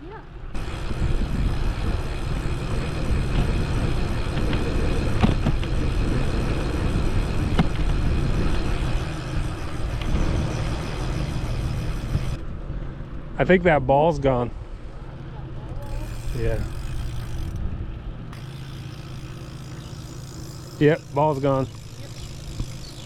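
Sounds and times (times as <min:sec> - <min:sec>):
bicycle riding rumble: 0:00.0 - 0:23.0
wind buffeting microphone: 0:00.5 - 0:13.7, 0:19.1 - 0:23.0
sharp clicks and rattles: 0:15.7 - 0:17.7, 0:18.3 - 0:23.0.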